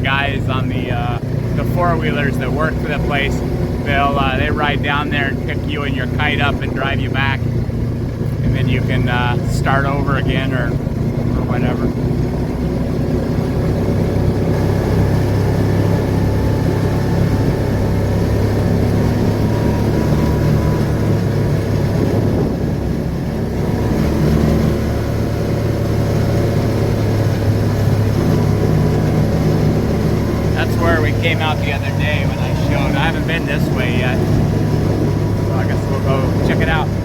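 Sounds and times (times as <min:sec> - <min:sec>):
road noise: 0:00.0 - 0:37.0
vehicle engine humming: 0:00.0 - 0:37.0.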